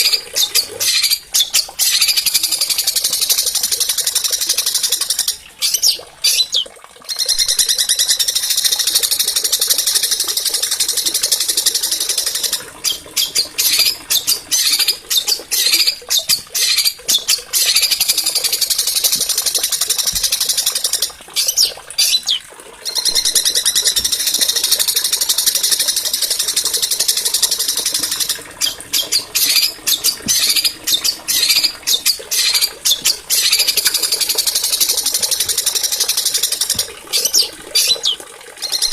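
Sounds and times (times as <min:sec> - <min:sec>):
songbird trilling: 0:11.8 - 0:19.2, 0:20.0 - 0:24.8, 0:27.2 - 0:38.9.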